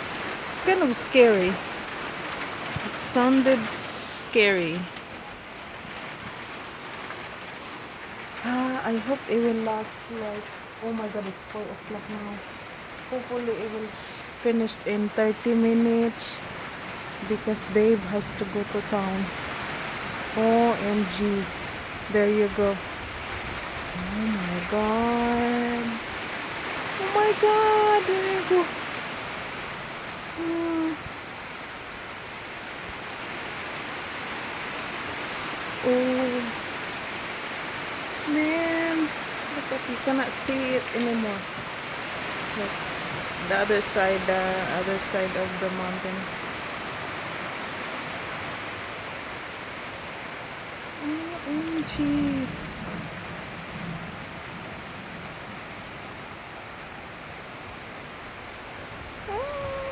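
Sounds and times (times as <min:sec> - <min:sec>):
heavy rain pouring: 0:00.0 - 0:59.9
person voicing ooh: 0:30.4 - 0:31.0, 0:51.0 - 0:52.5, 0:59.3 - 0:59.9.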